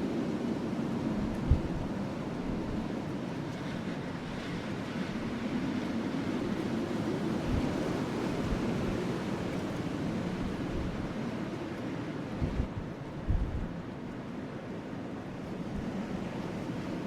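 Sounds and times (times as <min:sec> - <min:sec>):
rushing wind: 0:00.0 - 0:17.0.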